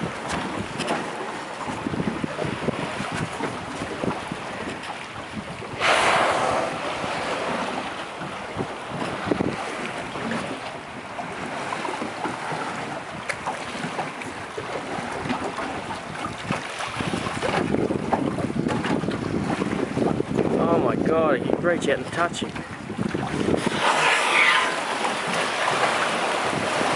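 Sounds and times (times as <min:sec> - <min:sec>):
water lapping around boat: 0:00.0 - 0:26.9
wind buffeting microphone: 0:00.0 - 0:26.9
loud rushing whoosh: 0:05.8 - 0:07.8.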